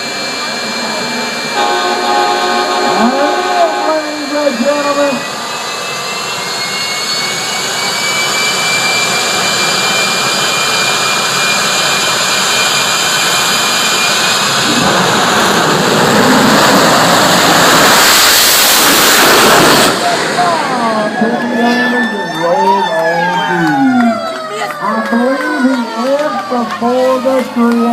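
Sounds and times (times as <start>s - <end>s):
heavy rush of jet noise: 0.0s - 24.6s
jet engine turbine whine: 0.0s - 27.9s.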